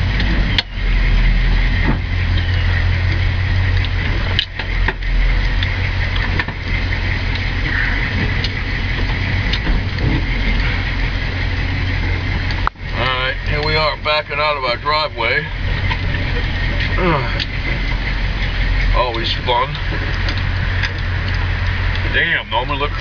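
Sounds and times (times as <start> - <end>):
car engine low rumble: 0.0 - 23.0.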